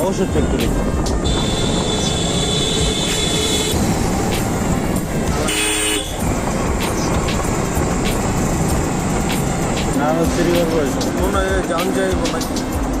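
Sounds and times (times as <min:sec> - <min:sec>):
road traffic: 0:00.0 - 0:13.0
motorcycle engine: 0:00.6 - 0:12.1
vehicle horn toot: 0:01.2 - 0:03.8, 0:05.3 - 0:06.2.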